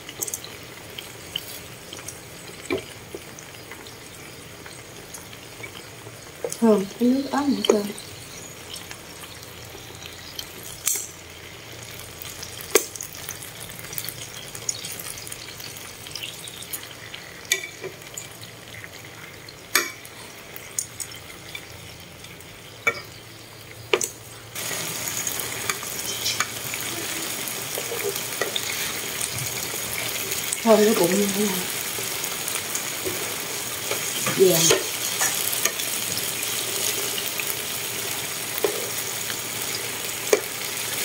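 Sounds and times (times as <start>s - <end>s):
food sizzling in a pan: 0.0s - 41.0s
metal tongs clicking on pan: 10.8s - 11.2s, 17.5s - 17.9s, 19.7s - 20.0s, 33.9s - 35.8s.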